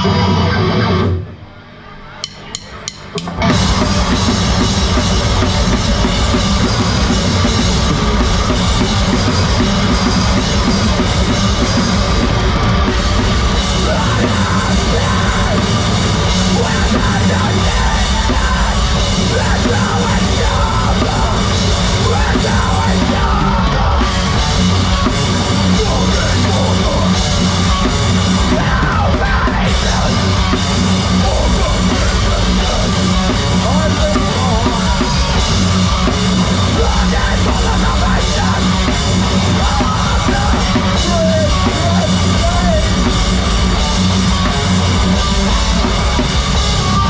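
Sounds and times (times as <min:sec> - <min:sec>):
heavy rock band playing: 0:00.0 - 0:47.0.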